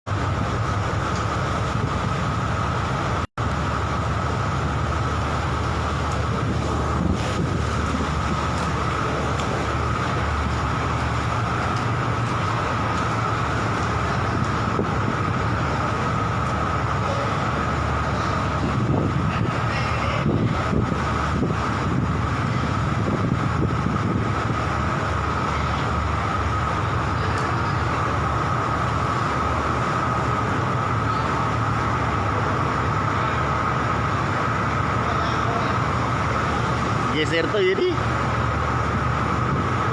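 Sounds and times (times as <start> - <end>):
high engine whine: 0.1 - 39.9
rushing noise: 0.1 - 39.9
ship engine drone: 0.1 - 39.9.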